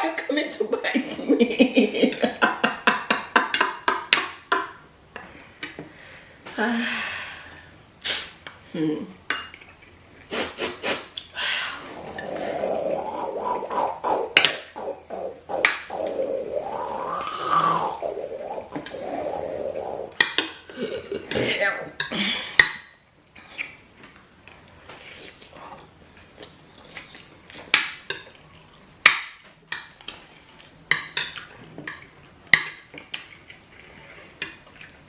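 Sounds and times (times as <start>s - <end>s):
dishes clinking: 9.3s - 9.8s
wavering hum or moan: 11.6s - 20.2s
laugh-like voice pulses: 11.8s - 20.2s.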